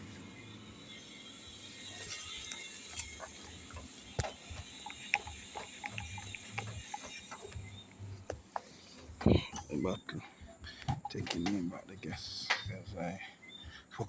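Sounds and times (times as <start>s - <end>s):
refrigerant gas hissing through hoses: 0.0s - 14.0s
clicks and taps of fittings and tools: 2.0s - 7.7s, 10.8s - 11.6s, 12.5s - 12.8s.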